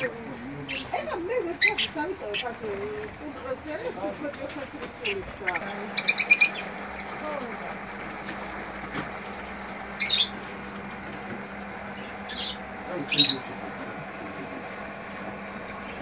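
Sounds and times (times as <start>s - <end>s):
bird squawking: 0.0s - 3.1s, 5.0s - 7.2s, 9.9s - 10.5s, 11.9s - 13.6s.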